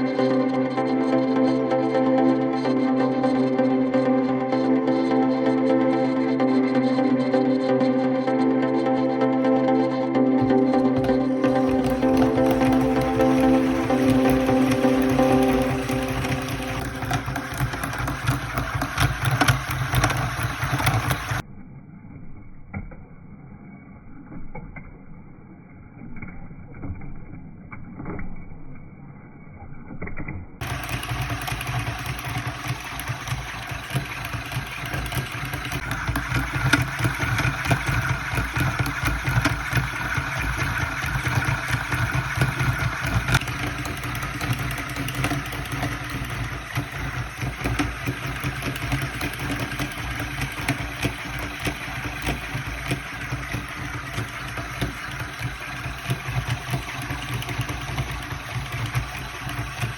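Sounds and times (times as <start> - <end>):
solenoid engine clattering: 10.4 - 21.4, 30.6 - 59.9.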